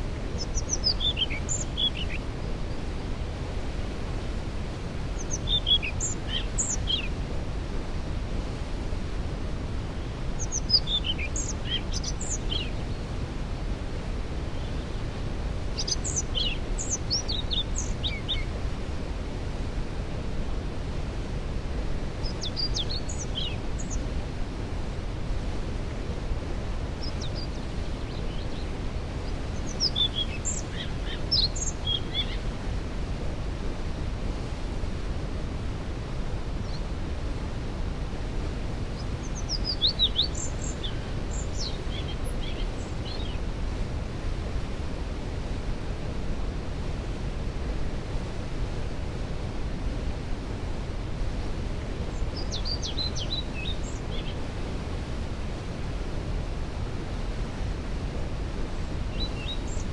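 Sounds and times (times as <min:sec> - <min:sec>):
songbird chirping: 0:00.2 - 0:02.9, 0:05.1 - 0:07.2, 0:10.3 - 0:13.1, 0:15.7 - 0:18.5, 0:22.2 - 0:24.1, 0:27.0 - 0:32.5, 0:38.9 - 0:43.4.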